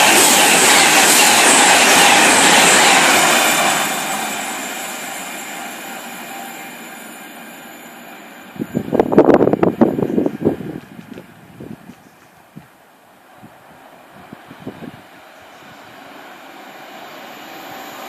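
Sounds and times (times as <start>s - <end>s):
train passing at speed: 0.0s - 18.0s
wind buffeting microphone: 8.6s - 12.8s, 13.4s - 16.0s.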